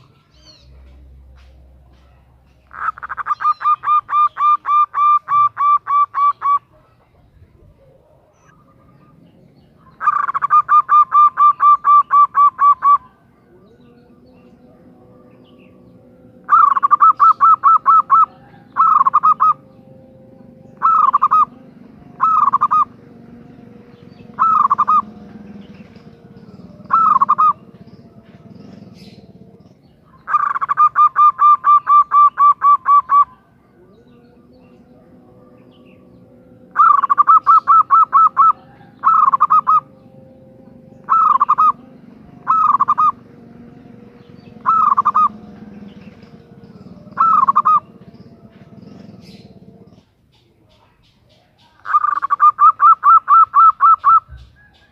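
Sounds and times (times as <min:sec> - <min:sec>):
dove calling staccato notes: 0:00.0 - 0:07.3, 0:08.0 - 0:54.9.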